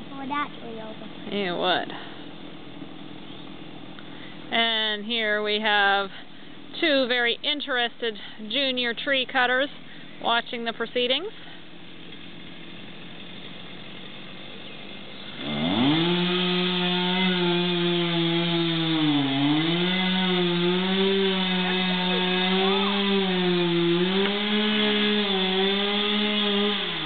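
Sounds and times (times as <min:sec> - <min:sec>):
chainsaw cutting tree trunk: 0:11.8 - 0:27.0.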